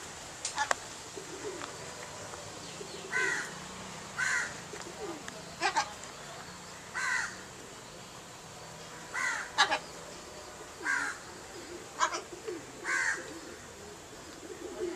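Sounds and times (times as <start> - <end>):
bird cawing: 3.0 - 3.6, 4.2 - 4.7, 6.8 - 7.5, 9.0 - 9.9, 10.8 - 11.3, 12.0 - 13.8.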